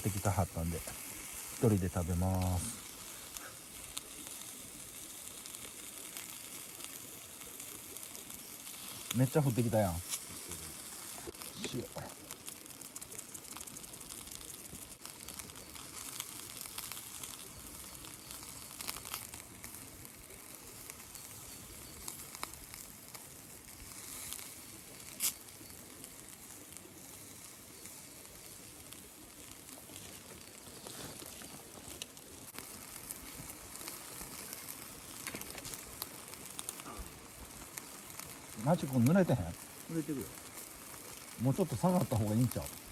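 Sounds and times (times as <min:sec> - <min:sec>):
chicken skewers sizzling on grill: 0:00.0 - 0:42.9
rain pattering: 0:00.0 - 0:42.9
small pops: 0:29.6 - 0:39.0.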